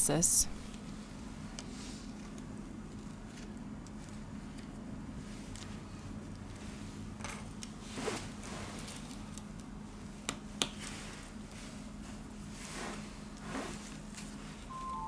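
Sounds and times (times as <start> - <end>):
soft scrapes and rustles: 7.8 - 9.2, 10.8 - 14.7.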